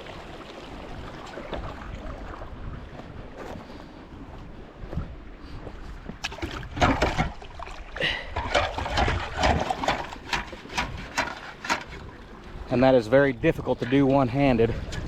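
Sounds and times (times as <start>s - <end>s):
water splashing in a ditch: 0.0s - 3.0s, 6.2s - 12.2s
wind rumble on microphone: 0.0s - 7.7s, 8.3s - 15.0s
metal tin knocking and scraping: 8.4s - 12.1s.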